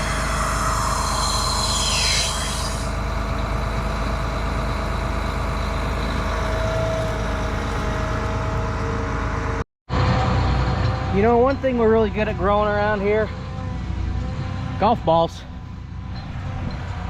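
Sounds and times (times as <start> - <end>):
short high hiss: 0.0 - 3.0
tractor diesel engine running: 0.0 - 17.0.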